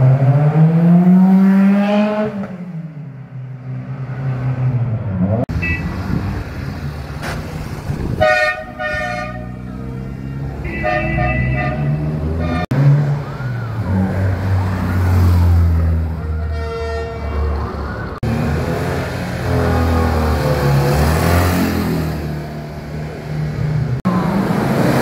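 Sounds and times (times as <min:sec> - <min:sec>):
car horn honking: 0:05.5 - 0:05.9, 0:08.2 - 0:12.8, 0:16.5 - 0:17.5.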